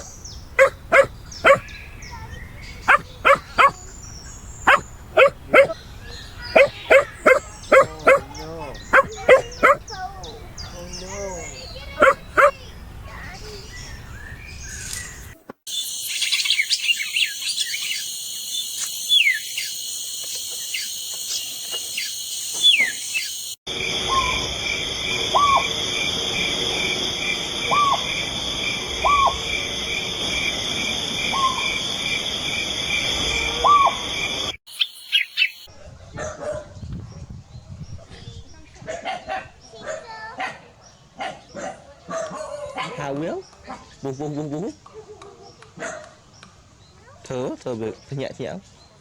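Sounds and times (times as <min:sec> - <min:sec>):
birds giving short calls: 0:00.0 - 0:10.4, 0:11.0 - 0:12.7, 0:15.7 - 0:23.5
insect chorus: 0:15.7 - 0:35.7.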